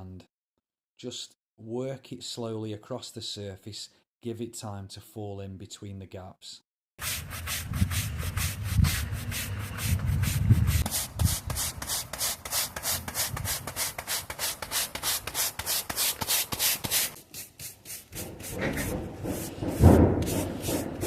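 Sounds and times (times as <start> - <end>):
sand swept across paving: 7.0 - 19.6.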